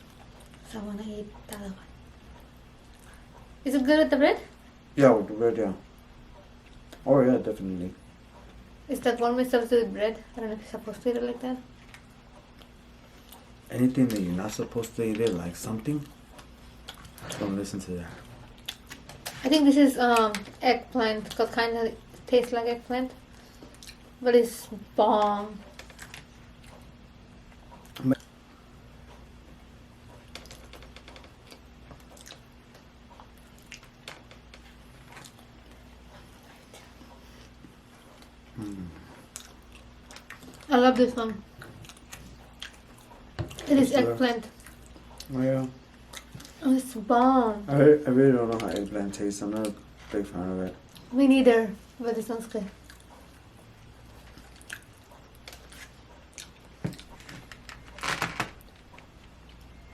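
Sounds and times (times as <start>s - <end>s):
chewing: 0.0s - 0.7s, 11.7s - 19.5s, 23.2s - 24.2s, 25.6s - 28.4s, 29.0s - 46.6s, 48.4s - 51.3s, 52.4s - 57.9s
sharp mouth clicks and smacks: 18.5s - 19.4s, 23.6s - 24.2s.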